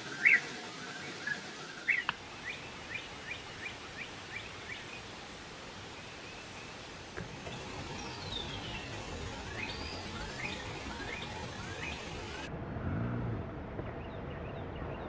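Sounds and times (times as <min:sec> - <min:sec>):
outdoor background hiss: 0:00.0 - 0:13.5
bird chirping: 0:05.9 - 0:12.5.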